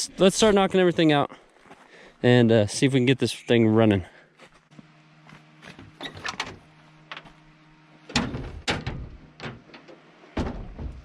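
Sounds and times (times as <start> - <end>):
sharp knocks and clatters: 8.1 - 11.0.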